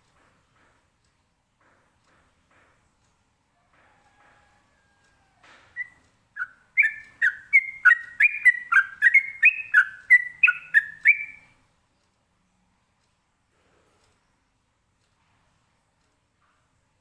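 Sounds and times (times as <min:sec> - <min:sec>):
bird singing whistled notes: 0:05.8 - 0:11.5.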